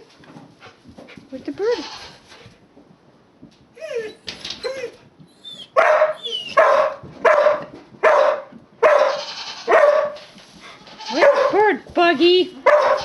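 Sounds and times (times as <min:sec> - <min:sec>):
dogs whining and yipping: 0:03.7 - 0:06.9
dog barking loudly: 0:05.7 - 0:10.2, 0:11.0 - 0:11.7, 0:12.6 - 0:13.0.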